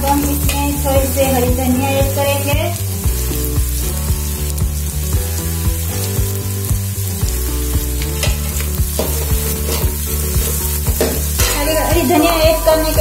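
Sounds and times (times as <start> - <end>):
background music with bass beat: 0.0 - 13.0
onions sizzling in oil: 0.0 - 13.0
spoon stirring in a pan: 7.9 - 12.0.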